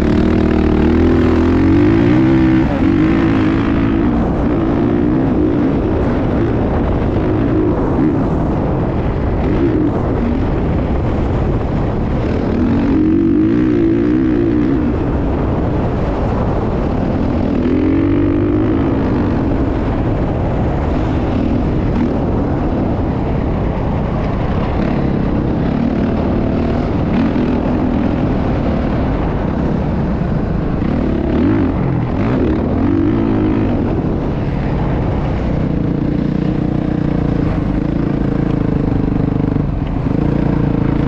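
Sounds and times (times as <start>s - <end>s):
motocross bike engine revving: 0.0s - 41.0s.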